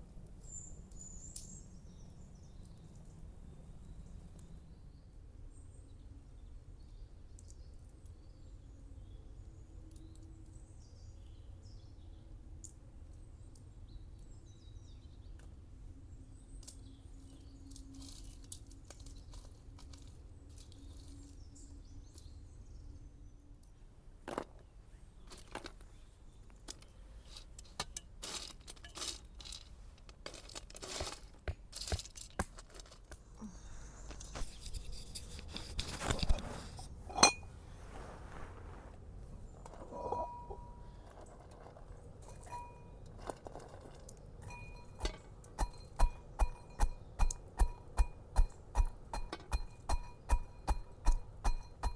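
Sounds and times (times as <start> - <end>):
clicks and crinkling handling noises: 16.6 - 21.5, 23.5 - 37.4.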